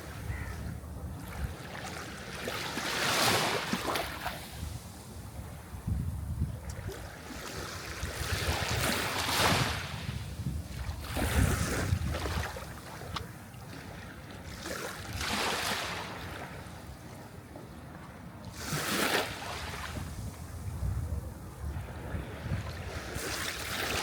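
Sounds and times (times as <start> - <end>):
sea waves breaking on shore: 0.0 - 5.8, 6.7 - 24.0.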